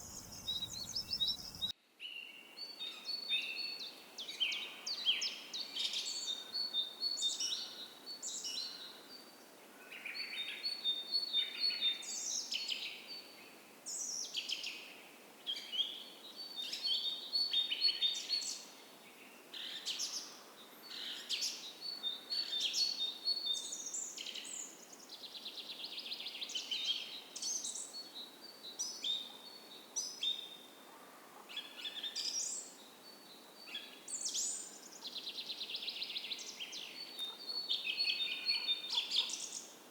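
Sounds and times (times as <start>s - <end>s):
creek hissing: 0.0s - 1.7s
songbirds chirping and trilling: 0.0s - 14.9s, 15.5s - 39.9s.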